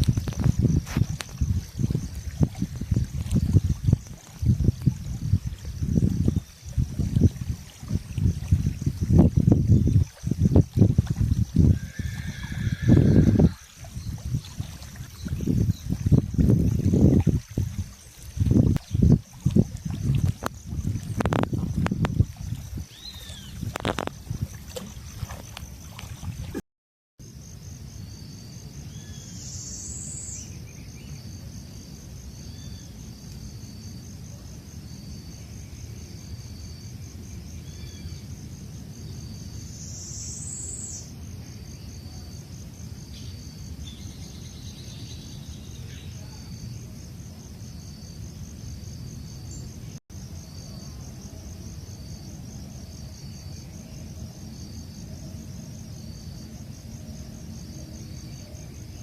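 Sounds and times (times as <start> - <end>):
insect chirping short notes: 0.0 - 26.6, 28.0 - 31.4, 32.4 - 34.1, 37.5 - 38.3, 39.1 - 42.2
insects trilling: 0.0 - 26.6, 27.2 - 59.0.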